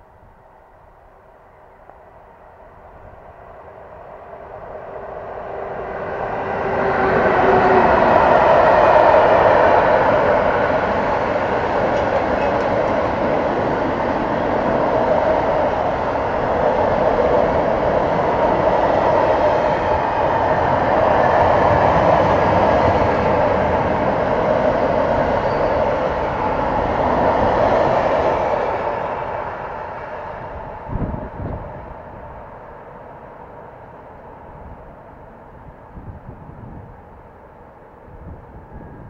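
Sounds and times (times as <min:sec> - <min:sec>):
train wheels running on rails: 0:04.8 - 0:35.5.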